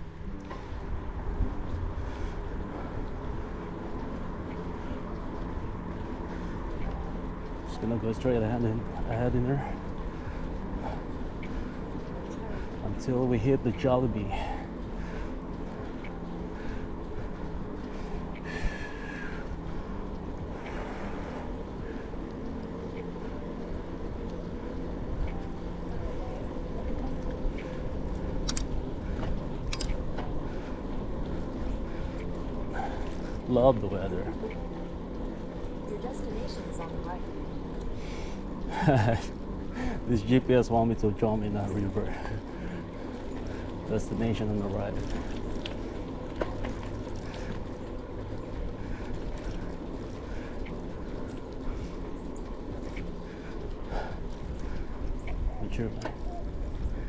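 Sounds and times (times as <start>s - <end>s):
bicycle rolling on trail: 0.0s - 57.0s
low hum: 0.0s - 57.0s
light clicks and rattles: 0.2s - 57.0s
sharp clicks: 28.4s - 28.8s.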